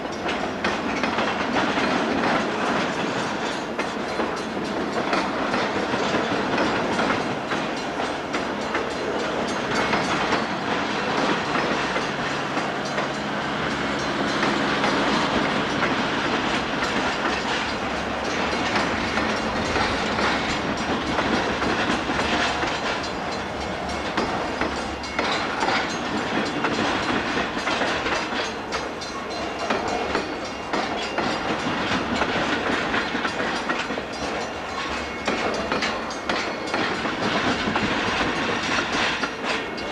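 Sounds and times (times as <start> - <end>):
train rumble and rail noise: 0.0 - 39.9
train wheels clacking: 0.0 - 39.9.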